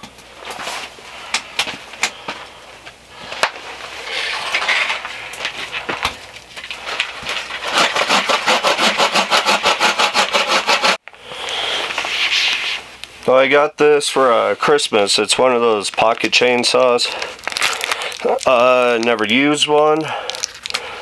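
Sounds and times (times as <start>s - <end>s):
hand saw cutting wood: 7.5s - 11.0s.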